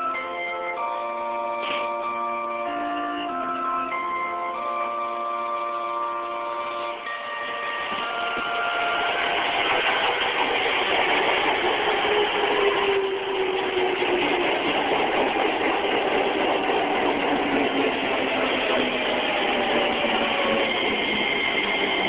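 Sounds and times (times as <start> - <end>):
chime notes: 0.0 - 9.6
electric train rumbling: 0.0 - 22.0
train motor whine: 6.9 - 22.0.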